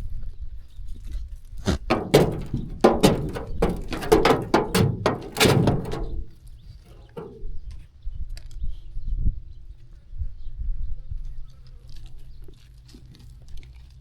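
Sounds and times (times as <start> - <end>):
sheep jostling knocks and clatters: 1.7 - 7.5.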